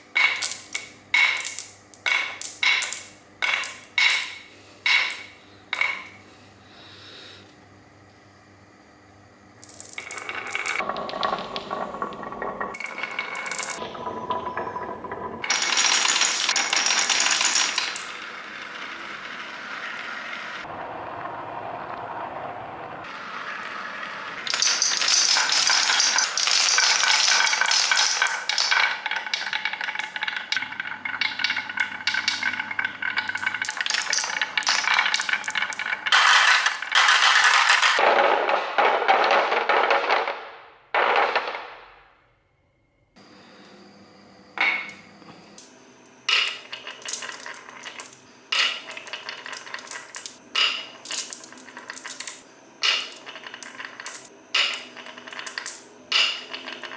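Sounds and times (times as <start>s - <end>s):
toy pieces rattling and clattering: 0.0s - 6.1s, 9.6s - 14.4s, 15.4s - 19.3s, 24.4s - 40.4s, 46.3s - 56.9s.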